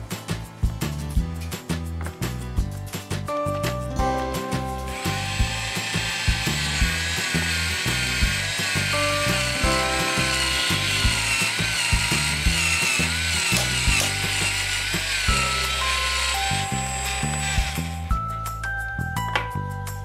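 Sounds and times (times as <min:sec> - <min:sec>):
background music with beat: 0:00.0 - 0:20.0
toy drill whirring: 0:04.9 - 0:18.2.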